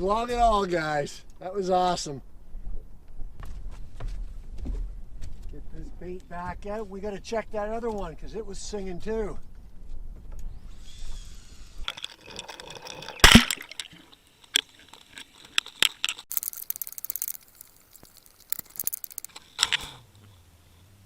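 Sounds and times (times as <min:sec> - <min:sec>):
fishing gear knocks and clicks: 0:11.8 - 0:19.8
rapid clicking: 0:15.6 - 0:19.4.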